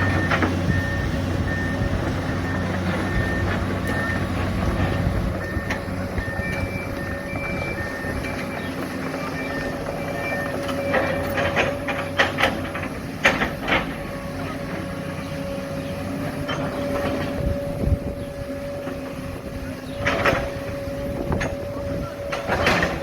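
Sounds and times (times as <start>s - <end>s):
excavator engine whining: 0.0s - 23.0s
metallic clanks and knocks: 10.7s - 14.0s.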